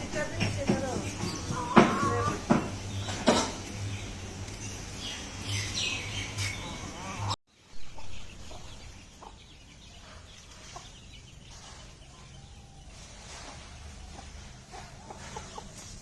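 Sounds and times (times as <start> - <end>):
hens clucking softly: 13.2 - 16.0.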